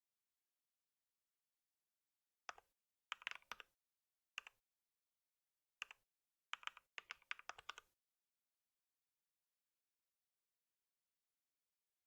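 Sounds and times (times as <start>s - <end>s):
computer keyboard typing: 3.1s - 3.7s, 6.6s - 7.9s.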